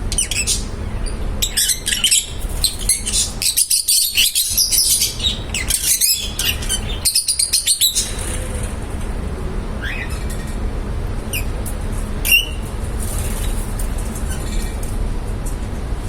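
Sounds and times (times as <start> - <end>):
lovebirds chirping: 0.0 - 8.4, 12.2 - 12.6
steady low hum: 0.0 - 16.0.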